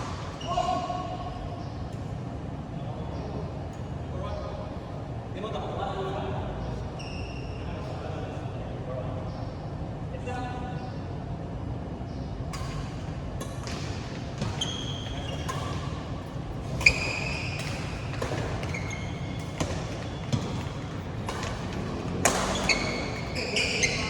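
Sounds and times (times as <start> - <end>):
shoes squeaking on court floor: 0.0 - 2.2, 6.6 - 8.1, 12.6 - 24.0
rackets striking shuttlecock: 12.5 - 24.0.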